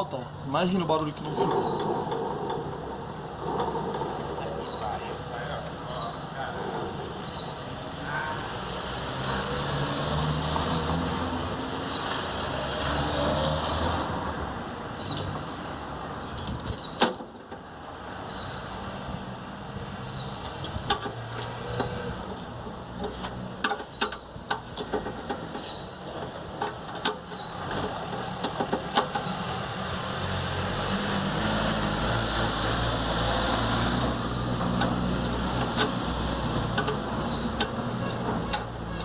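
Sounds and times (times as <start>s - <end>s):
alternator fan ticking and scraping: 0.0s - 8.0s, 32.6s - 39.0s.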